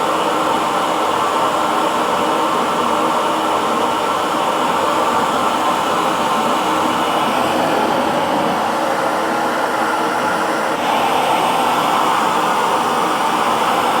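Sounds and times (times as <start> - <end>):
hair dryer blowing: 0.0 - 14.0.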